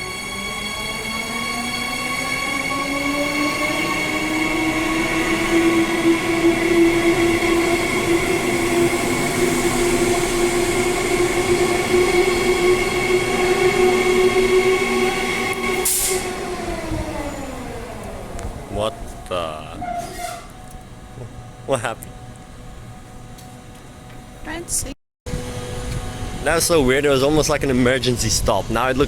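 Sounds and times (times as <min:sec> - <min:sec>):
electric train motors whining: 0:00.0 - 0:21.6.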